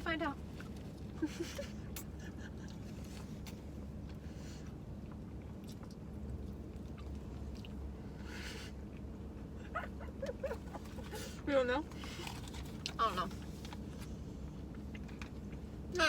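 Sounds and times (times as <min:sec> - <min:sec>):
low background hum: 0:00.0 - 0:16.0
person chewing food: 0:02.0 - 0:08.0, 0:11.9 - 0:15.6.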